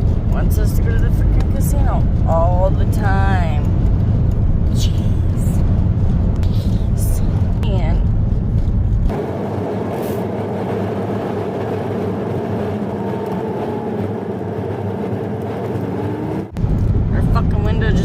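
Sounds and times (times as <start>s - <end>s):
road noise inside moving vehicle: 0.0s - 18.0s
wind: 0.0s - 18.0s.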